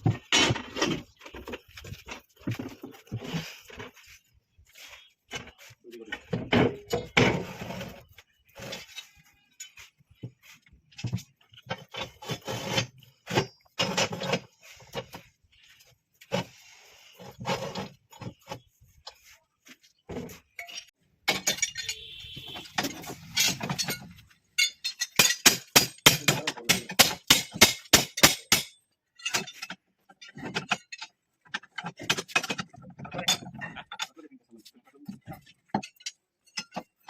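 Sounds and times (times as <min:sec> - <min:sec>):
knocking and clinking: 0:20.6 - 0:34.1
rapid hammer strikes: 0:25.2 - 0:28.8.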